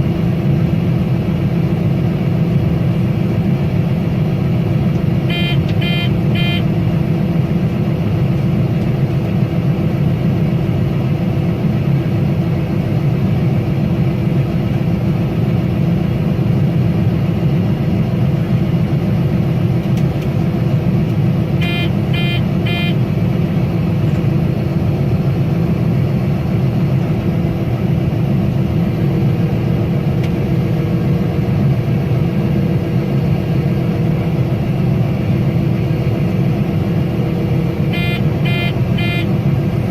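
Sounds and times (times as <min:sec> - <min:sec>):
combine harvester running: 0:00.0 - 0:39.9
electronic warning beeps: 0:05.3 - 0:06.7, 0:21.6 - 0:23.0, 0:37.9 - 0:39.3.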